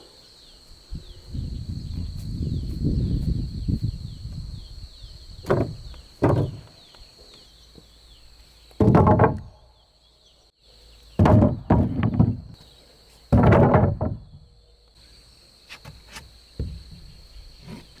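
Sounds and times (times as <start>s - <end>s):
insects droning and chirping: 0.0s - 18.0s
heavy knocks on wood: 5.4s - 6.8s, 8.8s - 9.6s, 11.2s - 12.6s, 13.3s - 14.5s, 16.6s - 17.2s.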